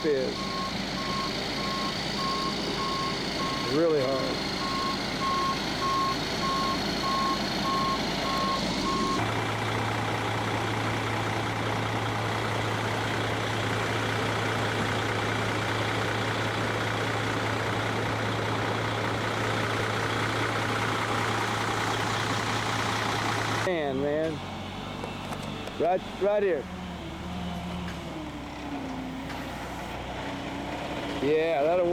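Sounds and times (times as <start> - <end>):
truck engine and road noise: 0.0 - 31.9.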